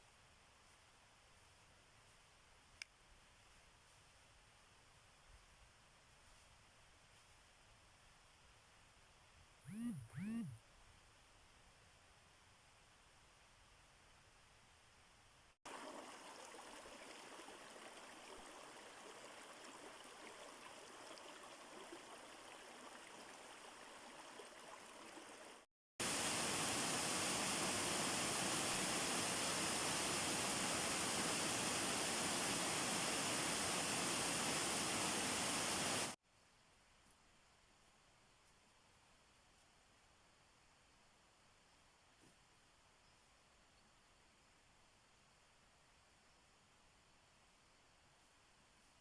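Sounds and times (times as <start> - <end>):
stream water rushing: 15.7 - 36.2.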